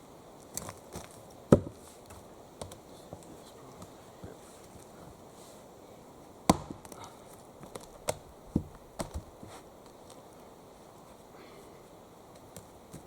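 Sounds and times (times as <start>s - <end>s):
axe chopping wood: 1.5s - 2.8s, 6.4s - 7.1s, 7.7s - 9.3s.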